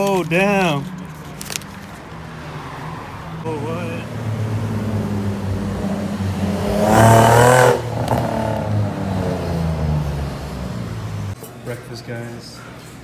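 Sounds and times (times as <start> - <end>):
car engine running and revving: 3.4 - 11.4.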